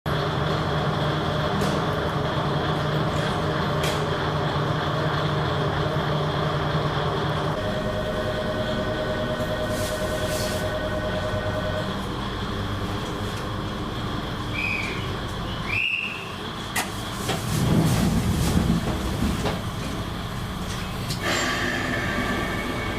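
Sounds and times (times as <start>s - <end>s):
diesel railcar engine running: 0.0s - 22.9s
engine whine: 0.1s - 22.9s.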